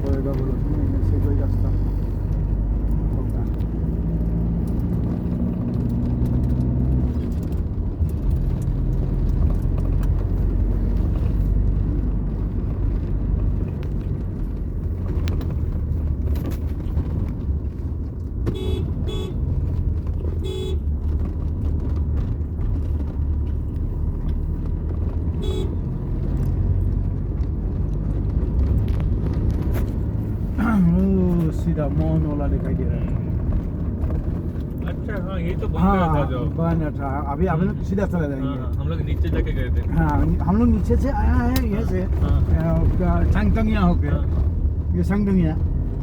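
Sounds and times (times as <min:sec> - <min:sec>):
car engine rumble: 0:00.0 - 0:46.0
tyres on road: 0:00.0 - 0:46.0
car horn short beeps: 0:18.5 - 0:19.4, 0:20.4 - 0:20.9, 0:25.4 - 0:25.8.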